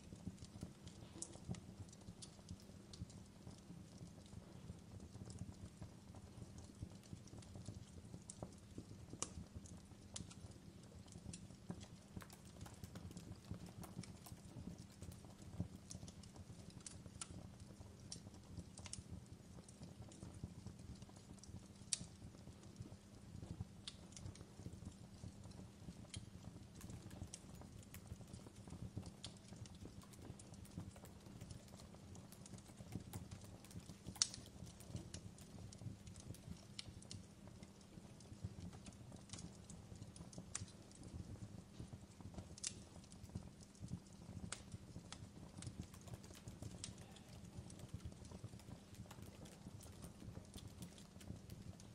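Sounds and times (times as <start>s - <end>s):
fire pops and snaps: 0.0s - 51.9s
wood fire crackling: 0.0s - 51.9s.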